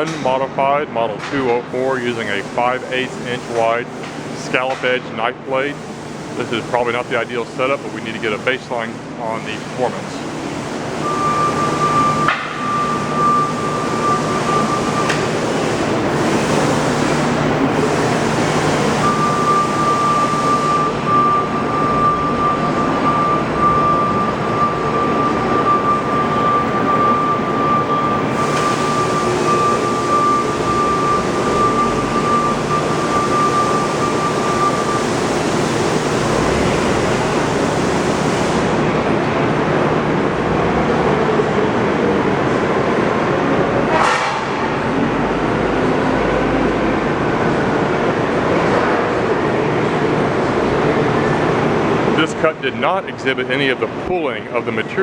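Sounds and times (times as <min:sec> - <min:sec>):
thin steady whine: 0:05.4 - 0:42.6.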